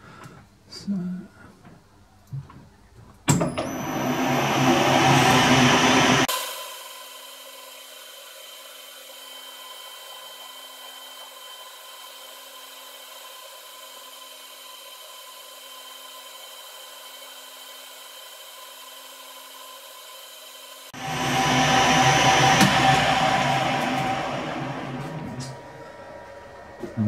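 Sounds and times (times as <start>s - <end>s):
metal lathe whirring: 3.5s - 27.0s.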